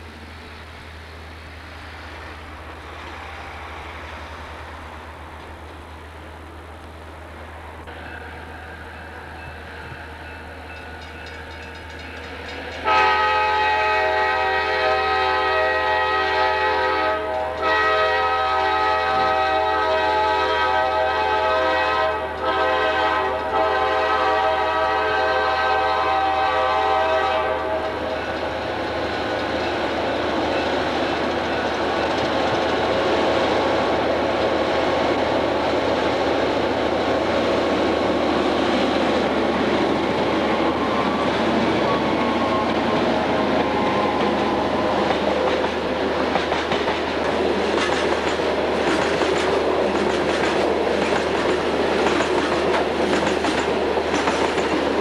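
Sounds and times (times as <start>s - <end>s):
diesel locomotives working: 0.0s - 55.0s
wheels clicking over rail joints: 9.1s - 13.0s, 27.7s - 36.2s, 39.3s - 55.0s
locomotive air horn blast: 12.8s - 28.4s.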